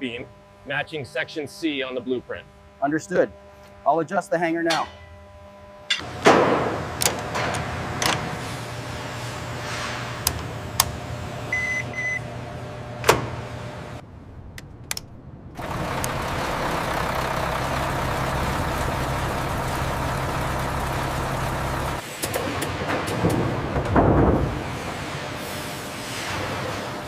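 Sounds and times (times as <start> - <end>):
machinery hum: 0.0 - 27.0
short beeps: 11.5 - 12.2.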